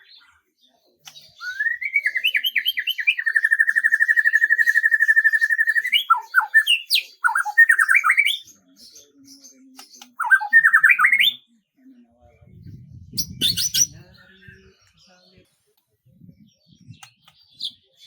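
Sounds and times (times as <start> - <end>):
songbird singing: 0.0 - 18.0
low rumble: 12.2 - 14.7.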